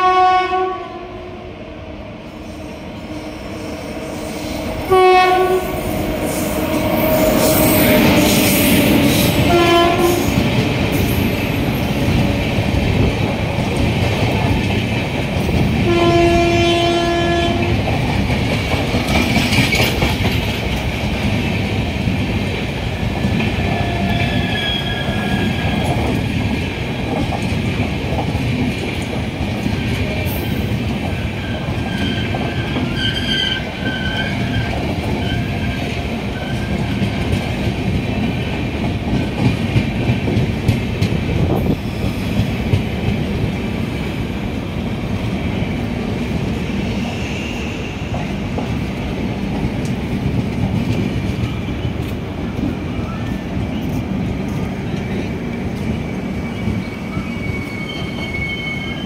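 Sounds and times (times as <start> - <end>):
locomotive horn: 0.0 - 1.4, 4.8 - 6.0, 9.4 - 10.4, 15.8 - 17.8
train wheels rumbling on rails: 2.2 - 59.0
faint wheel squeal: 56.4 - 59.0.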